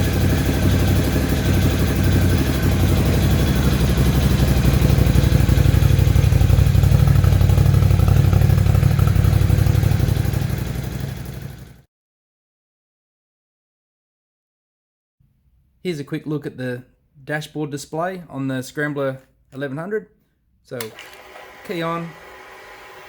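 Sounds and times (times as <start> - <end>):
motorcycle engine idling: 0.0 - 11.8.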